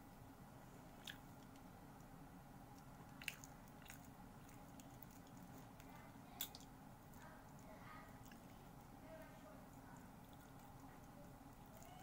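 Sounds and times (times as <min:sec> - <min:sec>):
person chewing: 0:02.8 - 0:08.9.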